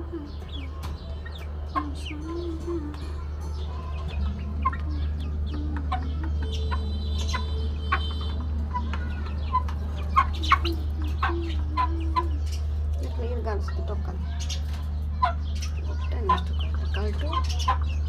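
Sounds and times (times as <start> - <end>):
chickens clucking: 0.0 - 18.0
chicks peeping: 0.0 - 18.0
low steady hum: 0.0 - 18.0.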